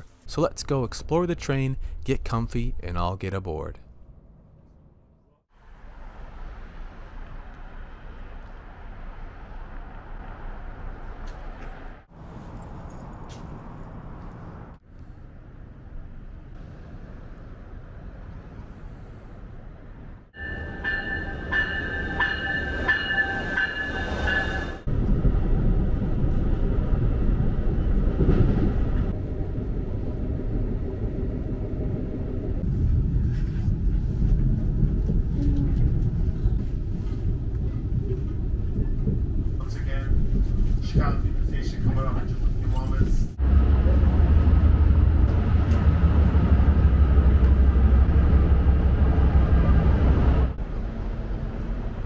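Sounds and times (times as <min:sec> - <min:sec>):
train rolling on rails: 0:16.6 - 0:52.0
steady chord of high tones: 0:20.4 - 0:24.9.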